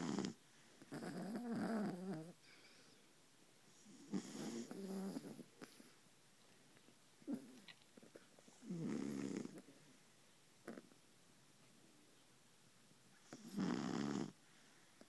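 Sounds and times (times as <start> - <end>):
dogs snoring: 0.0 - 2.4, 3.8 - 6.0, 7.2 - 9.7, 10.6 - 11.0, 13.2 - 14.4.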